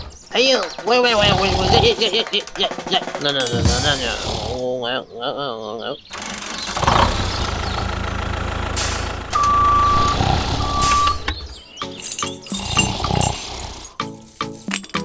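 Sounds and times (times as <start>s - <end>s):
air hiss bursts: 3.4s - 4.6s, 6.1s - 11.4s
truck engine running: 6.1s - 11.7s
reversing alarm beeps: 9.3s - 11.4s.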